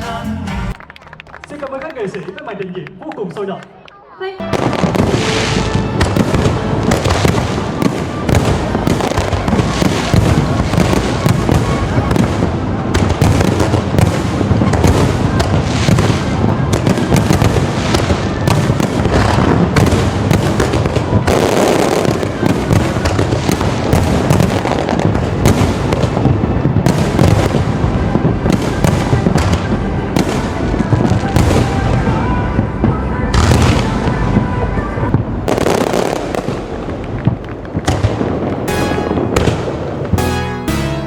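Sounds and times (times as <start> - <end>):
music playing: 0.0 - 1.4, 4.4 - 8.7, 38.4 - 41.0
fireworks bursting and crackling: 4.4 - 32.2, 35.5 - 41.0.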